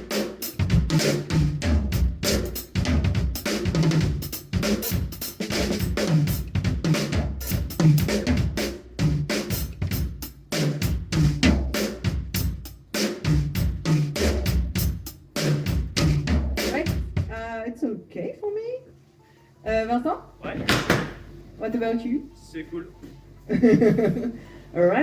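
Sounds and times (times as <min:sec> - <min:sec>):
hi-hat and cymbals: 0:00.0 - 0:17.2
snare drum: 0:00.0 - 0:17.3
bass drum: 0:00.0 - 0:17.5.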